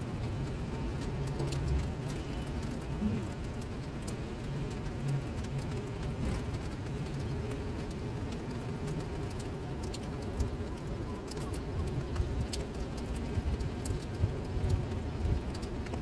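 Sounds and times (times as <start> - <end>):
rain splashing into standing water: 0.0 - 16.0.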